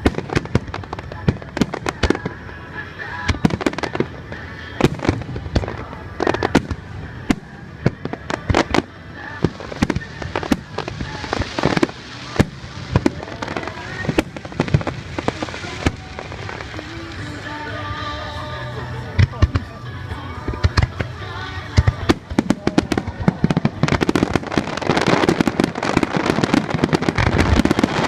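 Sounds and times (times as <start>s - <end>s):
fireworks bursting: 0.0s - 19.8s, 20.4s - 28.0s
fireworks crackling: 0.0s - 28.0s.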